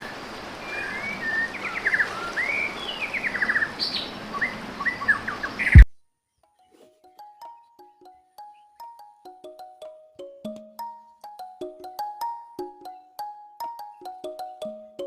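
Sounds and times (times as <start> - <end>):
steady outdoor hiss: 0.0 - 5.8, 6.7 - 15.0
birds chirping and singing: 0.6 - 5.8, 13.8 - 15.0.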